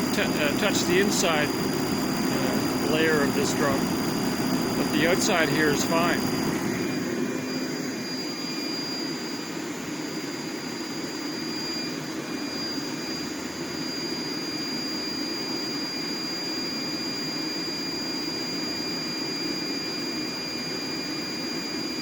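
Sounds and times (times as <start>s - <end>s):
propane heater burner rushing: 0.0s - 9.0s.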